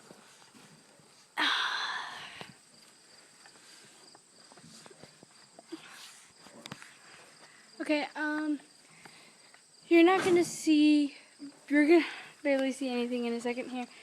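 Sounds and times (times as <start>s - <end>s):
footsteps outdoors: 2.4s - 10.9s.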